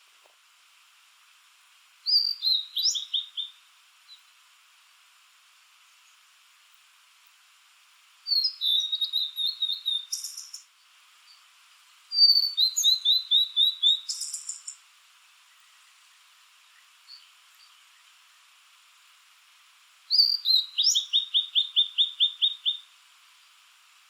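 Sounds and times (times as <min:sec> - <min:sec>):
bird singing whistled phrases: 0:02.0 - 0:03.6, 0:08.3 - 0:10.6, 0:12.1 - 0:14.8, 0:20.1 - 0:22.9.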